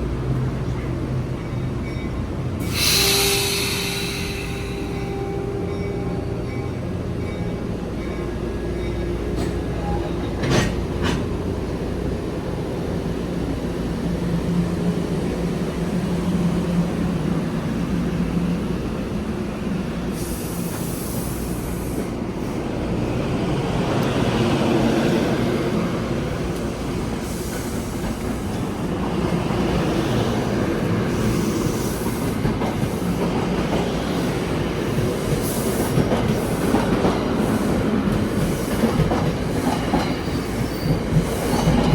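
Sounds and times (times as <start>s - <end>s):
train rumbling on tracks: 0.0s - 41.9s
high hiss or squeal: 2.6s - 5.2s
train wheel clatter: 30.8s - 41.9s.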